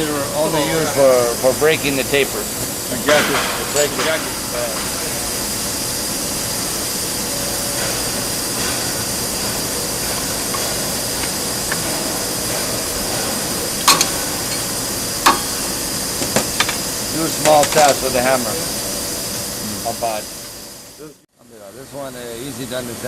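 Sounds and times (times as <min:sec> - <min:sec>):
workshop machinery hiss: 0:00.0 - 0:23.0
hammer tapping metal: 0:07.8 - 0:18.1.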